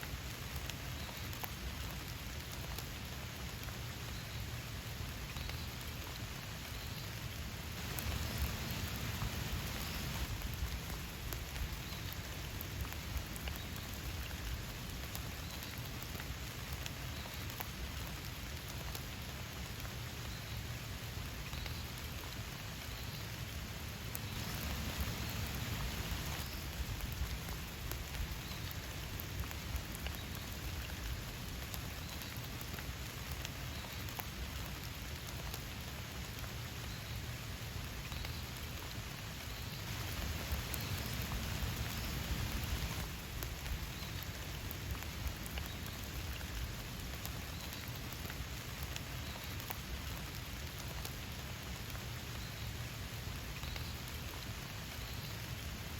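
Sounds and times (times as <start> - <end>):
rain drops ticking on a surface: 0.0 - 55.9.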